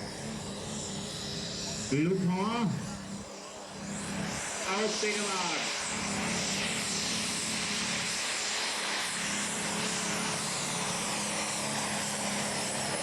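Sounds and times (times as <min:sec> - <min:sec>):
tractor engine running flat out: 0:00.0 - 0:13.0.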